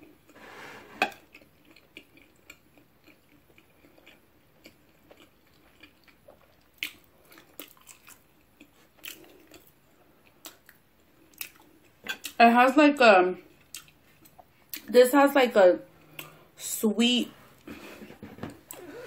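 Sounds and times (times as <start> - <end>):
chewing soft food: 1.2 - 12.4, 13.4 - 14.9.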